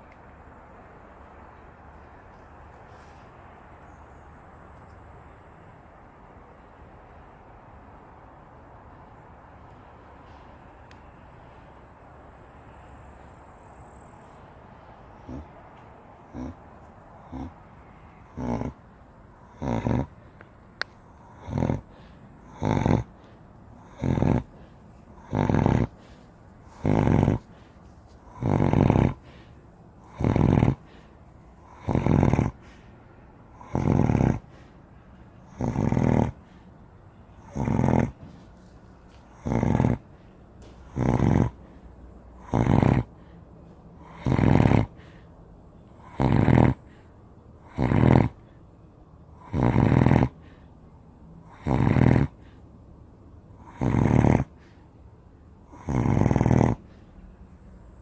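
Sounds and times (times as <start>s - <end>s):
dog snoring loudly: 15.2s - 15.5s, 16.3s - 16.6s, 17.2s - 17.6s, 18.2s - 18.8s, 19.4s - 20.2s, 21.1s - 27.7s, 28.3s - 32.8s, 33.5s - 34.6s, 35.5s - 36.6s, 37.4s - 38.3s, 39.3s - 40.1s, 40.8s - 41.7s, 42.4s - 43.2s, 44.0s - 45.2s, 45.9s - 47.0s, 47.6s - 48.4s, 49.4s - 50.5s, 51.4s - 52.5s, 53.6s - 54.6s, 55.7s - 56.9s.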